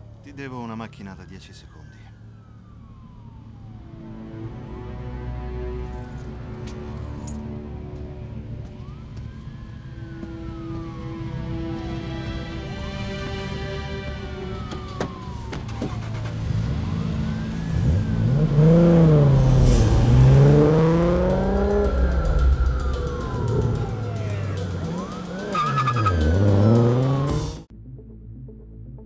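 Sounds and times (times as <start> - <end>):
police sirens wailing: 0.0 - 27.7
cars speeding past: 14.6 - 27.7.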